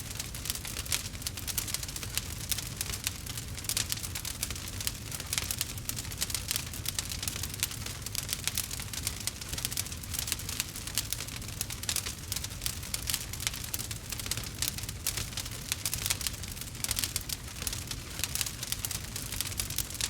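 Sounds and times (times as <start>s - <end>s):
campfire crackling: 0.0s - 20.0s.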